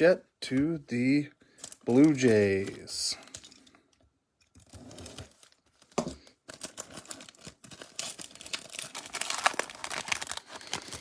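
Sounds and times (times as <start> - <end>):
wrapper crinkling: 1.5 - 3.8, 4.6 - 11.0.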